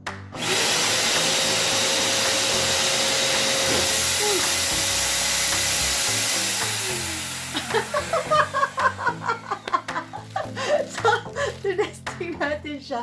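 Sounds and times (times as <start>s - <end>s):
vacuum cleaner motor whine: 0.4s - 9.4s.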